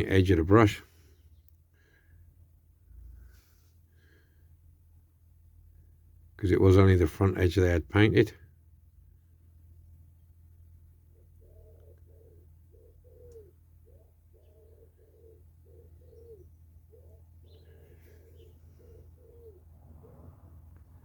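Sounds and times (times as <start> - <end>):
pigeon cooing: 11.1 - 21.0.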